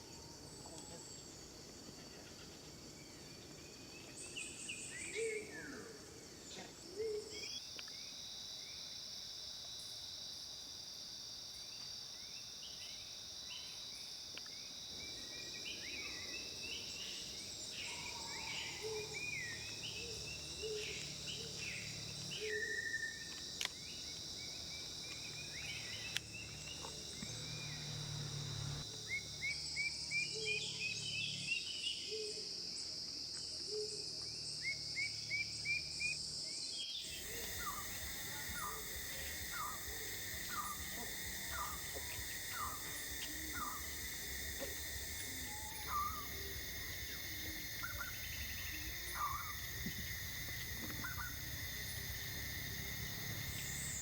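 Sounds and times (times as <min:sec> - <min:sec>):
high insect drone: 0:00.0 - 0:54.0
wild birds calling: 0:15.0 - 0:29.2, 0:37.0 - 0:54.0.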